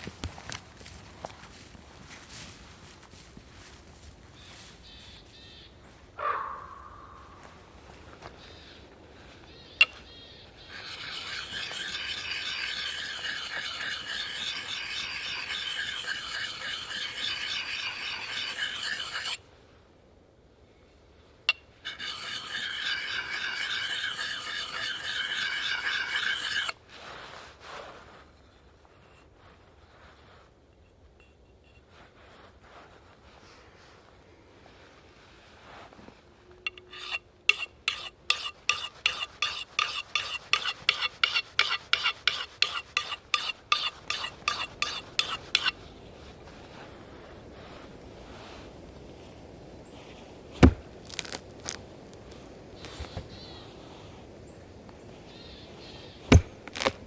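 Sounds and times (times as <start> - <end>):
rasping scrape: 10.6 - 19.4, 21.8 - 28.2, 35.6 - 48.6, 50.0 - 51.8, 55.9 - 57.0.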